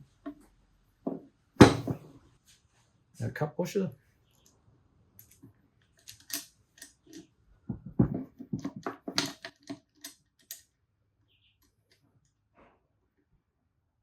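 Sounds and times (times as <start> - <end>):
small metal parts clicking: 5.2 - 7.3, 9.2 - 10.7.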